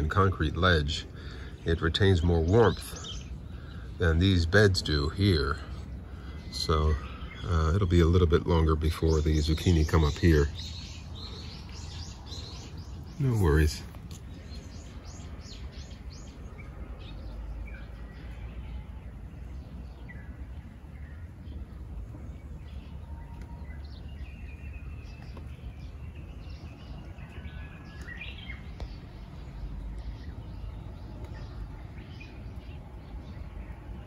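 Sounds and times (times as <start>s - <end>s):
low outdoor rumble: 0.0s - 34.0s
small songbirds chirping: 0.0s - 34.0s.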